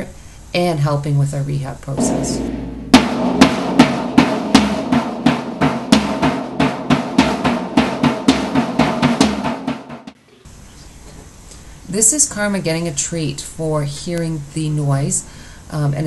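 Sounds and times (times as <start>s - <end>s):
snare and bass drum strikes: 2.0s - 10.2s.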